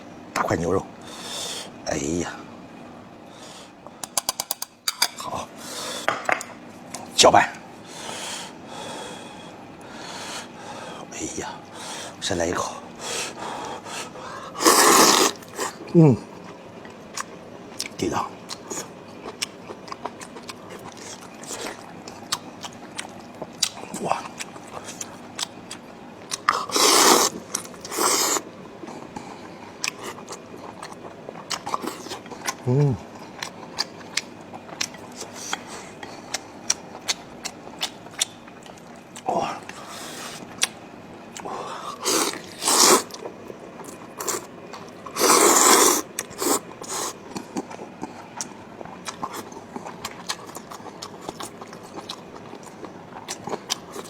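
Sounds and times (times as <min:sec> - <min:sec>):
slurping noodles: 0:14.5 - 0:15.8, 0:26.5 - 0:28.5, 0:41.7 - 0:43.2, 0:45.1 - 0:47.2
chewing and mouth-smacking clicks: 0:16.9 - 0:26.7, 0:33.4 - 0:39.8, 0:47.3 - 0:54.0
wet chewing clicks: 0:33.2 - 0:39.8, 0:40.4 - 0:54.0.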